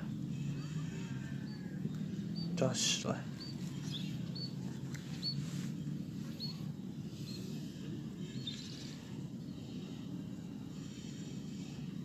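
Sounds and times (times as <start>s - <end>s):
low background noise: 0.0s - 12.0s
small bird chirping: 0.5s - 9.8s.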